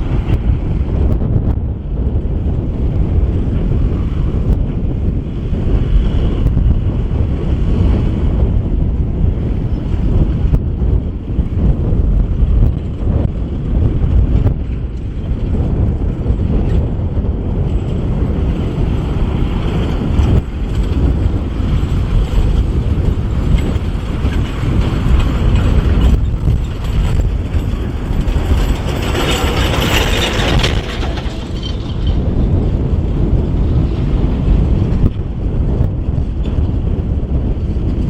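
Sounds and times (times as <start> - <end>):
tractor diesel engine rumbling: 17.4 - 35.6.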